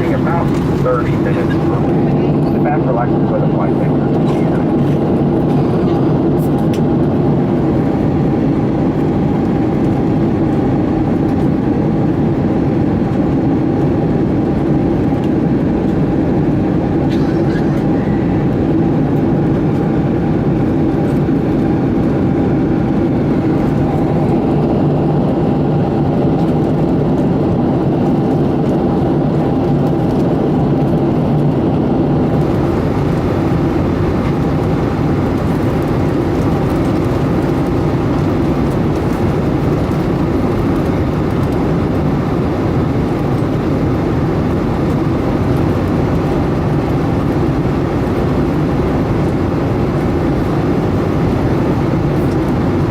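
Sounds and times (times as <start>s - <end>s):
low steady hum: 0.0s - 4.6s, 32.2s - 52.9s
airplane cabin engine drone: 0.0s - 52.9s.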